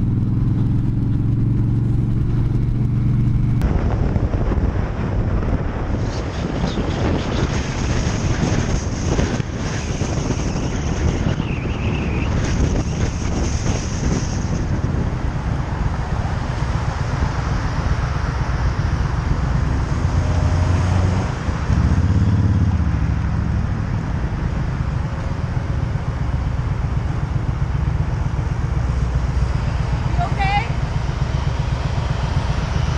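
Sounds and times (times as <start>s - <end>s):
motorcycle engine running: 0.0s - 5.8s, 21.6s - 32.9s
wind noise on microphone: 0.0s - 32.9s.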